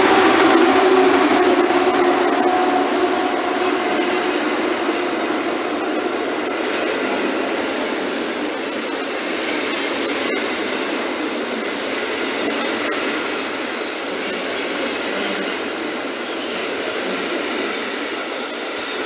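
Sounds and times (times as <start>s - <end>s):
train wheels on rails: 0.0s - 19.0s.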